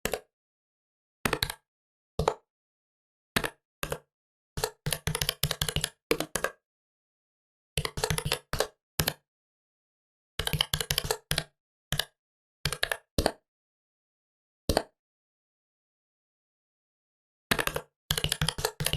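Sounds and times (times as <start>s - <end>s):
typing on a laptop keyboard: 1.3s - 1.6s, 4.6s - 6.5s, 7.8s - 9.2s, 10.4s - 12.1s, 17.5s - 18.9s.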